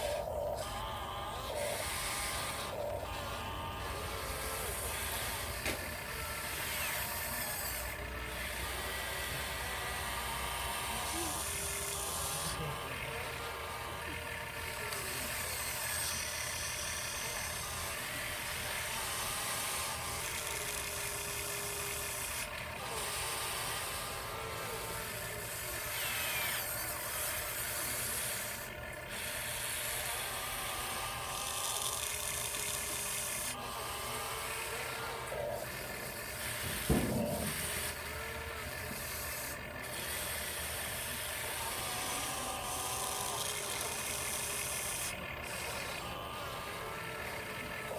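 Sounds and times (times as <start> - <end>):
electric motors whining: 0.0 - 47.9
sharp knock: 36.8 - 37.2.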